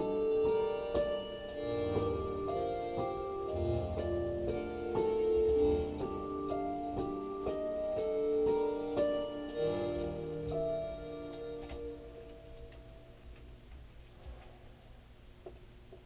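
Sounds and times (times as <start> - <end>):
hi-hat ticking: 0.0 - 11.9
piano-like keyboard melody: 0.0 - 13.6
deep bass notes: 1.6 - 8.9.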